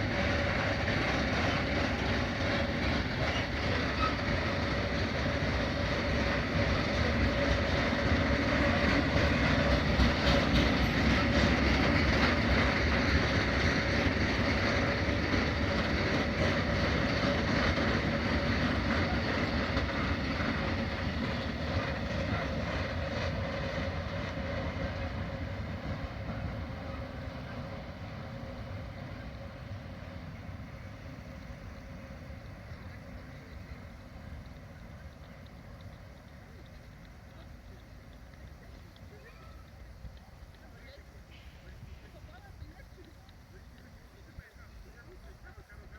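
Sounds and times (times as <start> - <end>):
freight train rumble and clatter: 0.0 - 45.9
train whine: 0.0 - 45.9.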